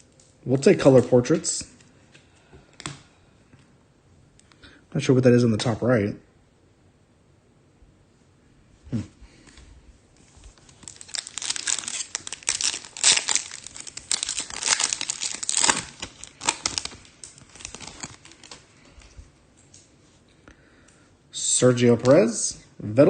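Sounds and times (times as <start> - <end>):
foil wrapper tearing and crinkling: 10.5 - 18.6.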